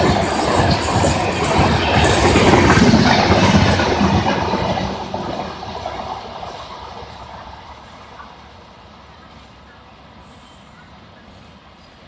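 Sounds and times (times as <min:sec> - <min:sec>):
train rumbling over rails: 0:00.0 - 0:12.0.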